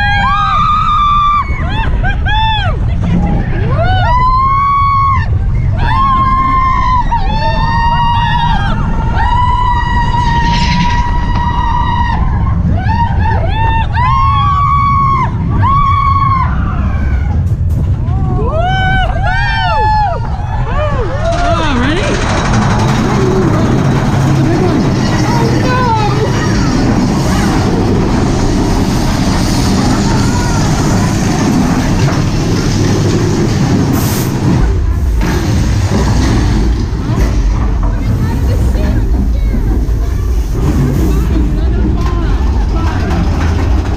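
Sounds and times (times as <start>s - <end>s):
riders screaming: 0.0s - 2.8s, 3.7s - 17.4s, 18.2s - 33.2s
roller coaster rumble: 0.0s - 43.9s.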